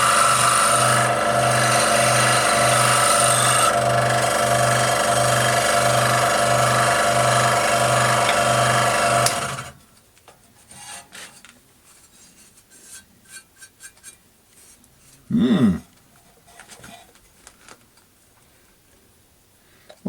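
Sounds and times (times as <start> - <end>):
scroll saw cutting metal: 0.0 - 9.8.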